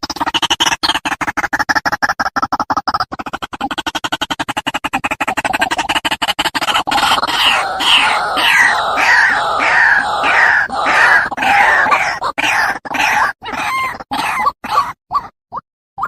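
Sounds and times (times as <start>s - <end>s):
bird calling harshly: 6.7s - 14.9s.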